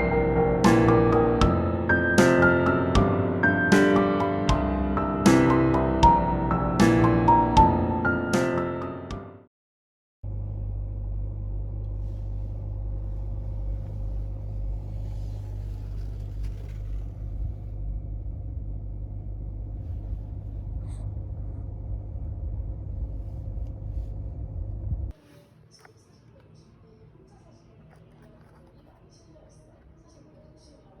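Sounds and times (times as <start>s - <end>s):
steady low rumble: 10.2s - 25.1s
faint even hum: 10.3s - 31.0s.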